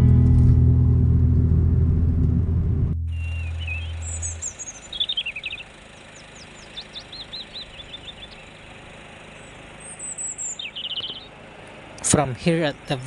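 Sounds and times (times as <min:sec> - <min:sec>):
songbirds chirping and trilling: 0:03.1 - 0:13.0.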